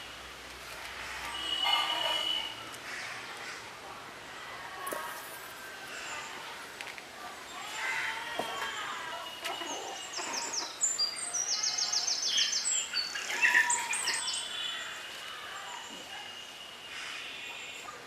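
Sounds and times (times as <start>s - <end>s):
birds chirping and calling: 7.5s - 18.0s.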